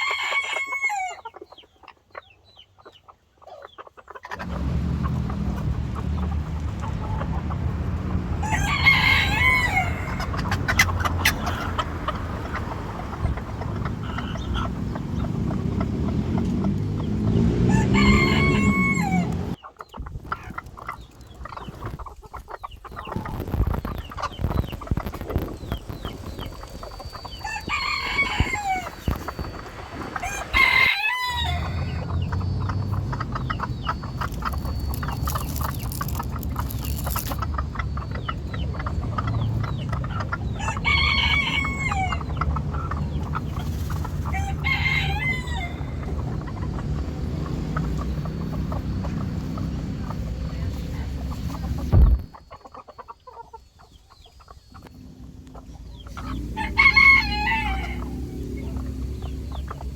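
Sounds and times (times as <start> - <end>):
rooster crowing: 0.0 - 1.2, 8.2 - 10.5, 17.2 - 19.6, 27.4 - 29.5, 30.1 - 32.9, 40.5 - 42.4, 44.2 - 46.6, 56.0 - 58.8.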